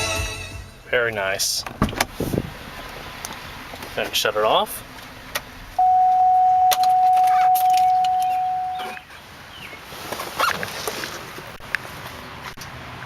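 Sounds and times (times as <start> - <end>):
electronic warning tone: 5.8 - 9.0.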